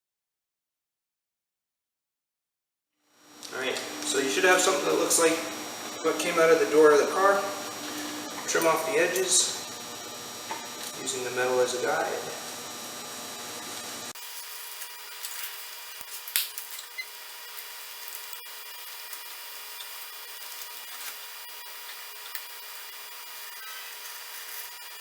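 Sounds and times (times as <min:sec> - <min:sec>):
knife scratching plastic sheet: 0:19.1 - 0:22.6, 0:23.5 - 0:25.0.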